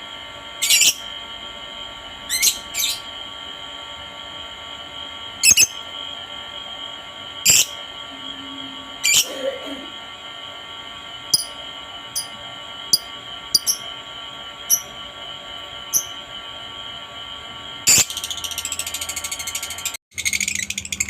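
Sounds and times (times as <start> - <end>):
high-pitched whine: 0.0 - 10.0, 10.9 - 20.0
lovebird chirping and chattering: 0.6 - 1.0, 5.4 - 5.8, 7.5 - 7.8, 9.0 - 9.3, 11.3 - 11.6, 12.9 - 13.9, 14.7 - 14.9, 15.9 - 16.2, 17.9 - 21.0.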